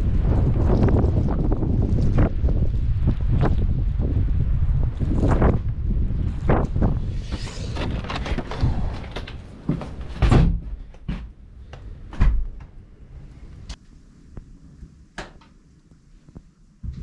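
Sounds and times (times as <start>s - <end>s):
heavy thuds: 9.1s - 11.4s.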